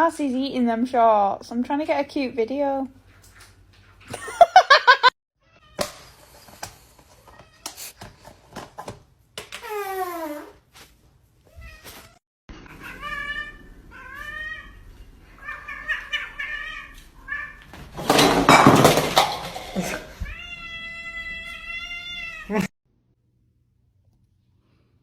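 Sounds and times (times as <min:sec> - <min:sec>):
cat meowing: 0:11.5 - 0:17.7, 0:20.2 - 0:22.7.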